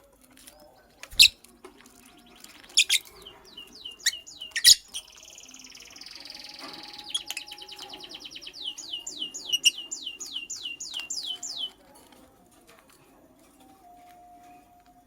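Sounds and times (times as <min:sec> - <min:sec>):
lovebird chirping: 0:00.6 - 0:01.4, 0:02.0 - 0:11.8.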